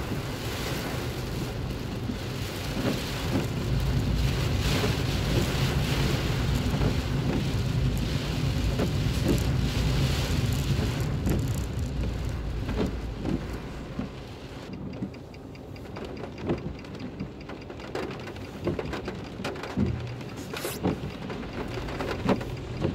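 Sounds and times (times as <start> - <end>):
heavy rain on car roof: 0.0 - 22.9
raindrops tapping on car: 0.0 - 22.9
road and engine noise: 0.0 - 22.9.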